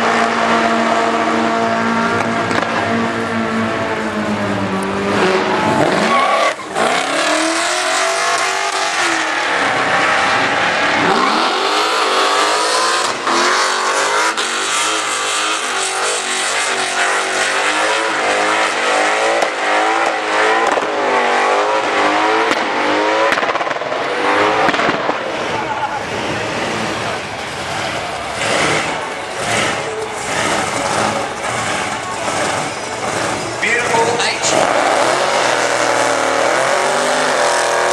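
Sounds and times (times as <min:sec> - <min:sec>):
car engine revving hard: 0:00.0 - 0:37.9
tyres spinning and squealing: 0:05.2 - 0:21.6, 0:24.2 - 0:37.9.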